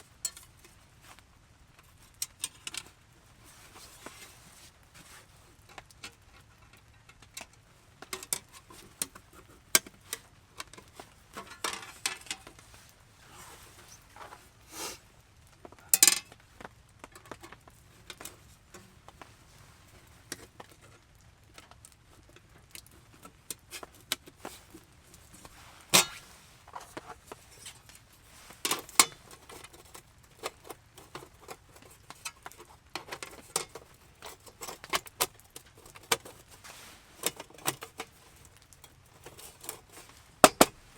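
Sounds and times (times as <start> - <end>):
hard objects clinking and knocking: 37.2 - 40.9.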